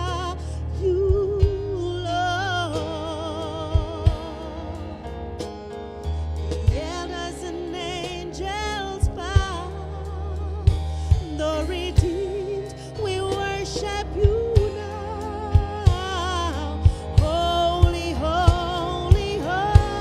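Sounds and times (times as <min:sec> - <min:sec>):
person singing with vibrato: 0:00.0 - 0:05.4, 0:06.6 - 0:20.0
band playing gospel music: 0:00.0 - 0:20.0
low bass: 0:00.0 - 0:20.0
sharp drum hits: 0:16.8 - 0:20.0.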